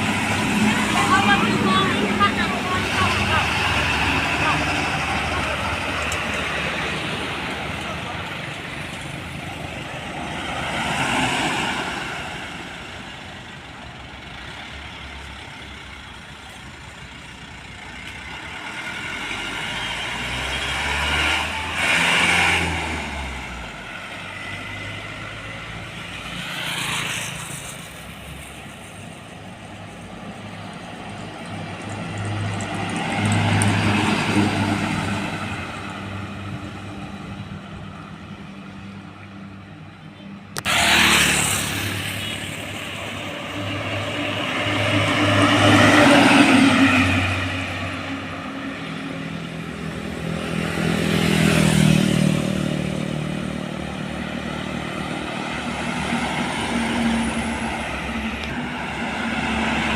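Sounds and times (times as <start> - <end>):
low diesel engine hum: 0.0 - 26.3
road traffic passing: 0.0 - 59.9.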